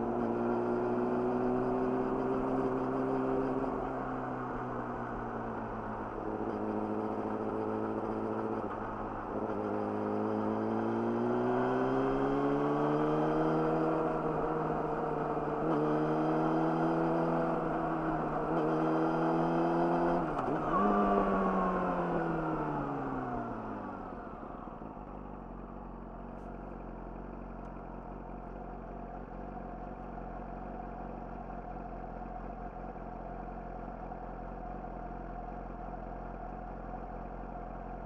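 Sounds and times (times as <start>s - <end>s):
motorcycle engine accelerating: 5.4s - 25.6s.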